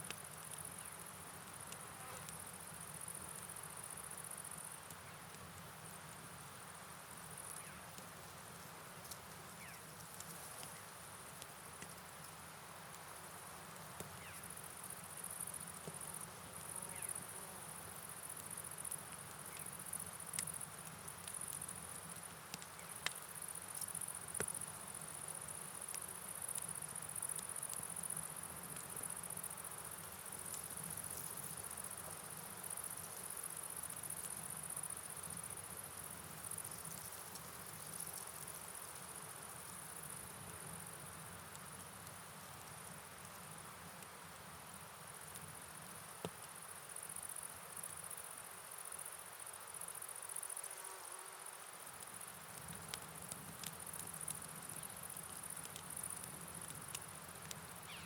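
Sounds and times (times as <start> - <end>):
crickets chirping: 0.2 - 7.9, 9.0 - 58.0
faint clicks: 52.0 - 58.0.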